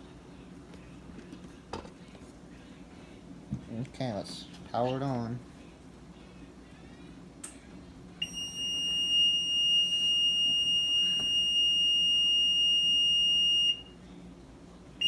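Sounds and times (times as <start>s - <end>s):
long high-pitched beep: 8.2s - 13.9s.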